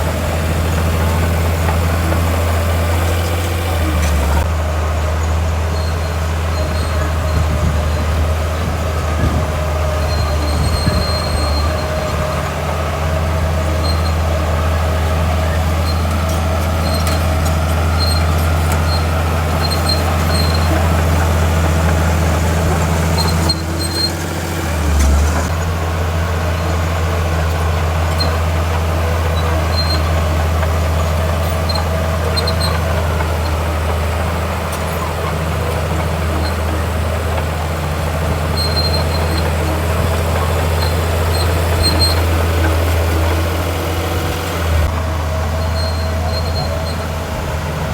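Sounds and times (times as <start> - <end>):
diesel machinery engine drone: 0.0 - 47.9
faint high squeaks: 9.8 - 12.2, 15.1 - 25.5, 38.3 - 44.9, 45.5 - 47.1.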